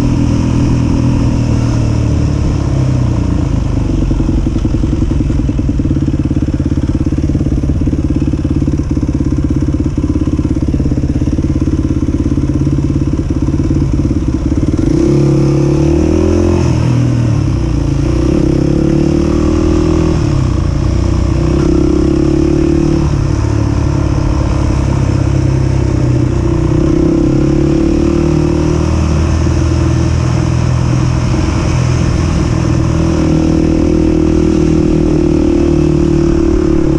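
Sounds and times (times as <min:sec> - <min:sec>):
dirt bike engine revving: 0:21.1 - 0:31.6.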